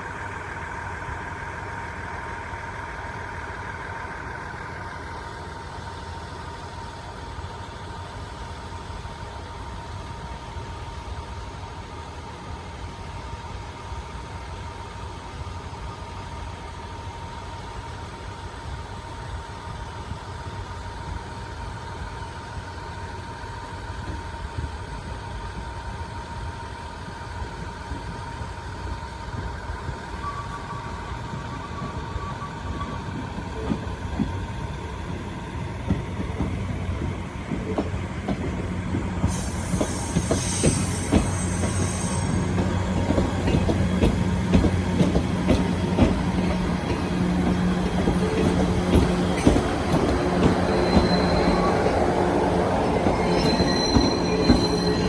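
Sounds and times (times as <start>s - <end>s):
electric train running: 27.6s - 55.0s
wheels clicking over rail joints: 42.5s - 51.2s
high-pitched wheel squeal: 49.4s - 55.0s.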